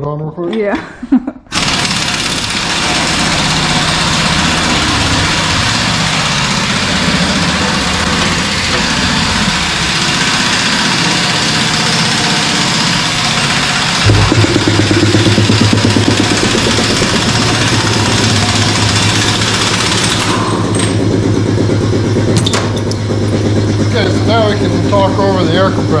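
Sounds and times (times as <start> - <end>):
air compressor running: 1.5 - 26.0.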